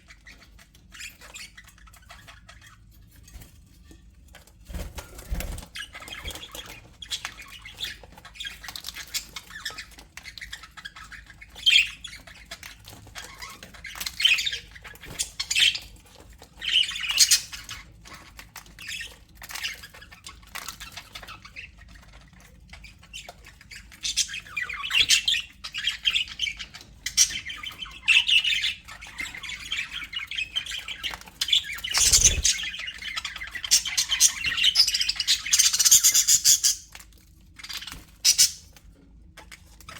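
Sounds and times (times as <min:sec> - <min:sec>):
budgerigars chattering: 0:23.9 - 0:36.9, 0:37.7 - 0:38.6
wing flaps: 0:31.9 - 0:32.6.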